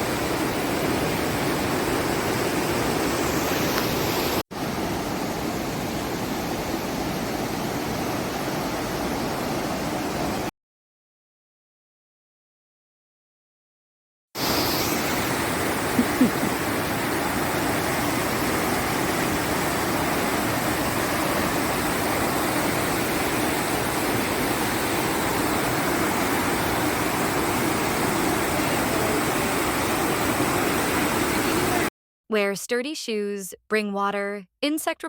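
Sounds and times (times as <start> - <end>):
river water rushing over boulders: 0.0 - 10.5, 14.4 - 31.9.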